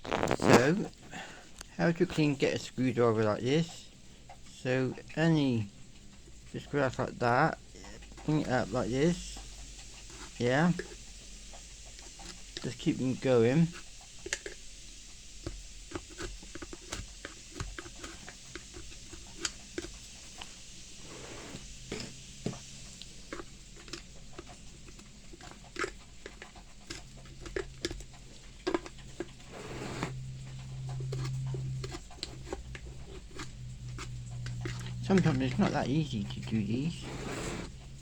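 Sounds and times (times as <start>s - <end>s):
screwdriver scraping grass from gear: 0.0s - 1.1s, 21.0s - 22.6s, 29.3s - 30.2s, 34.8s - 37.8s
low steady hum: 20.4s - 38.0s.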